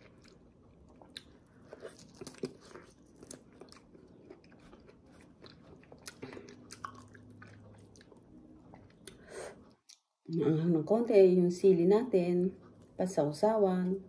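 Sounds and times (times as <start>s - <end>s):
person chewing juicy fruit: 0.0s - 10.2s.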